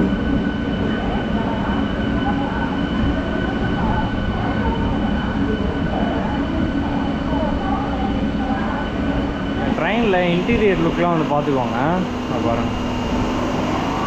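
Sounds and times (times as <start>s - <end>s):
thin high whine: 0.0s - 14.0s.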